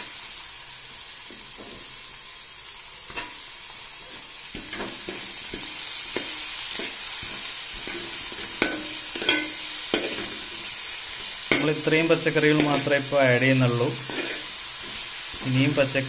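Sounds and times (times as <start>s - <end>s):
vegetables sizzling in oil: 0.0s - 16.0s
metal spatula scraping a pot: 4.0s - 13.0s, 14.0s - 15.4s.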